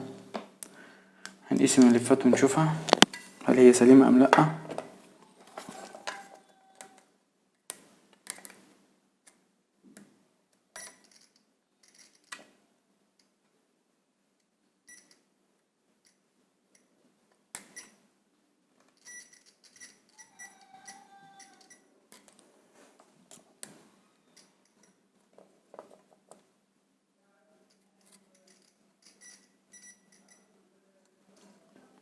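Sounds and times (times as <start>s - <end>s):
probes clicking and tapping: 1.3s - 3.6s
multimeter continuity beeps: 29.2s - 30.4s.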